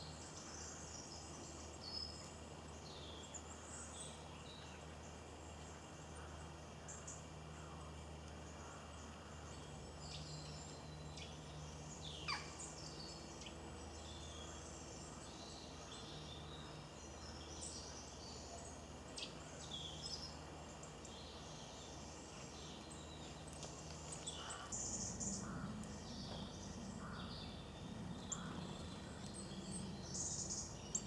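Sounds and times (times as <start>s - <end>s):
birds chirping: 0.0s - 31.0s
low hum: 0.1s - 31.0s.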